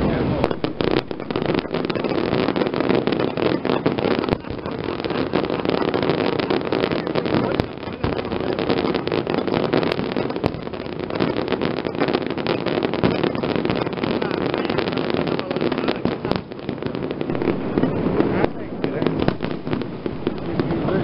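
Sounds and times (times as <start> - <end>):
fireworks crackling and popping: 0.0 - 21.0
steady rumble: 17.2 - 21.0.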